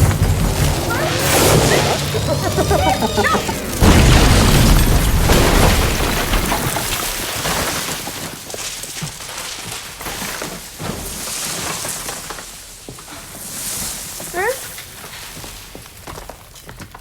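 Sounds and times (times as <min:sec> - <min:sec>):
loud explosion: 0:00.0 - 0:07.2
debris raining down and crackling: 0:00.0 - 0:14.2.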